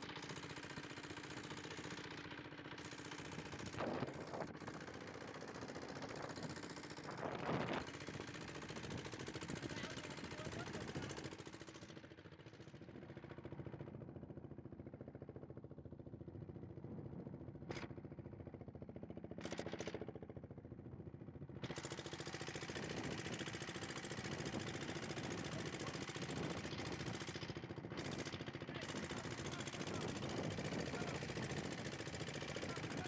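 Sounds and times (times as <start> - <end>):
boat engine running: 0.0 - 12.0, 21.7 - 33.0.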